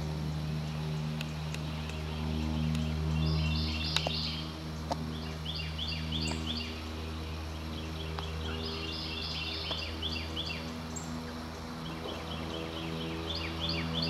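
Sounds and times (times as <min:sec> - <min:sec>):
steady low drone: 0:00.0 - 0:14.0
songbird singing high falling notes: 0:05.1 - 0:14.0.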